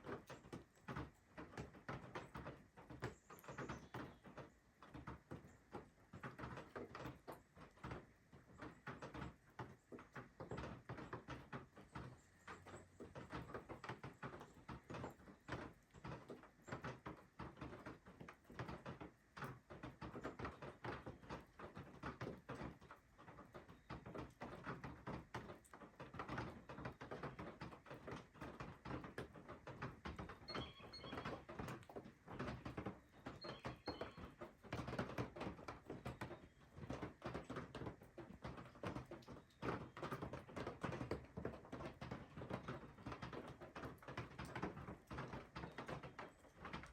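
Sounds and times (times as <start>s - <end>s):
small bird chirping: 30.4s - 31.4s, 33.1s - 34.4s.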